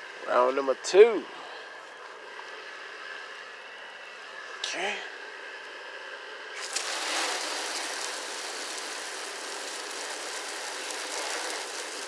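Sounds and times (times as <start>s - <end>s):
pressure washer spraying: 6.6s - 12.0s.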